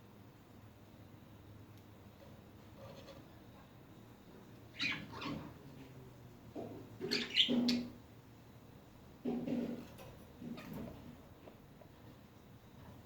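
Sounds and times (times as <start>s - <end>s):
budgerigars chirping: 4.8s - 5.4s, 7.1s - 7.9s.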